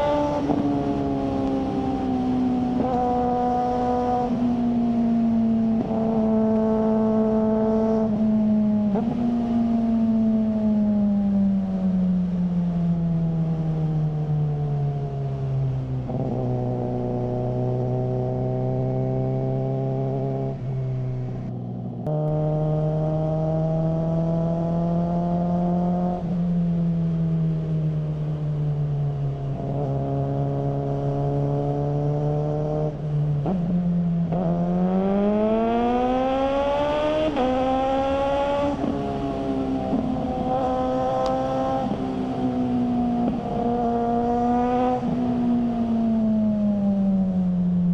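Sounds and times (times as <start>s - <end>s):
motorcycle engine revving: 0.0s - 11.3s, 15.9s - 28.4s, 29.5s - 47.9s.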